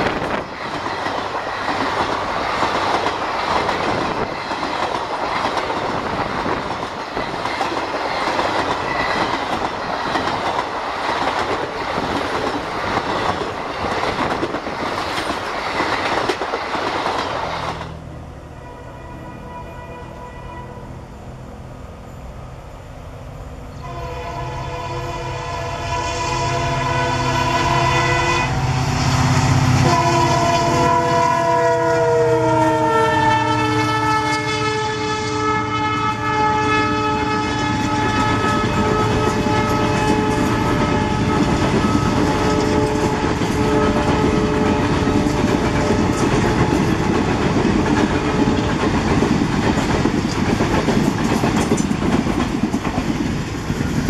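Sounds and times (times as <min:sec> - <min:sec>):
locomotive passing drone: 0:00.0 - 0:54.0.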